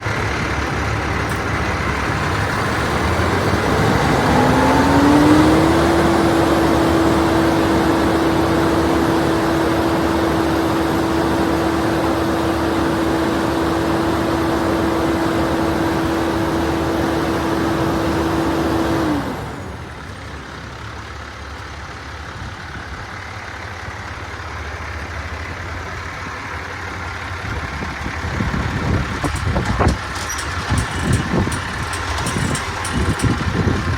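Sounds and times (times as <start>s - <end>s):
vacuum truck tone: 0.0s - 20.4s, 28.3s - 33.9s
truck engine running: 0.0s - 33.9s.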